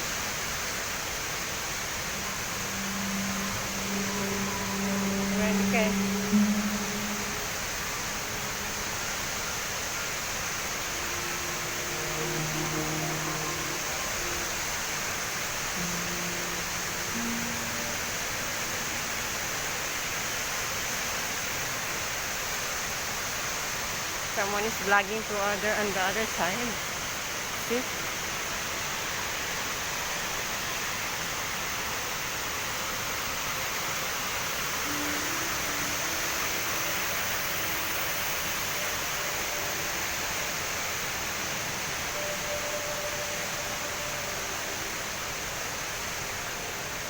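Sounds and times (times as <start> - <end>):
indoor waterfall rushing: 0.0 - 47.0
waterfall pouring into pool: 25.8 - 47.0.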